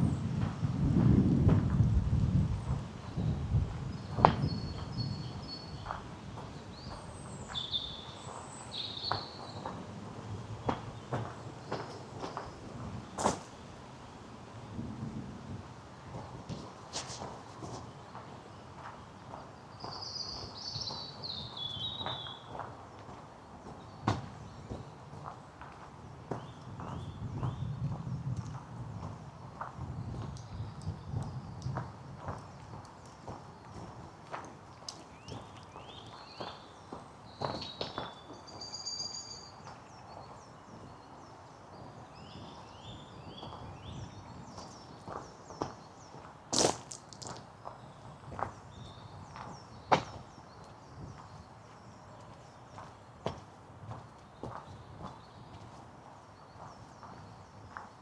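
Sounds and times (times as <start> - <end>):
songbird singing: 2.6 - 9.8, 16.5 - 23.0, 26.1 - 28.6, 29.2 - 53.4
footsteps on a path: 10.6 - 13.6, 16.1 - 30.3, 31.2 - 38.6, 39.7 - 58.0.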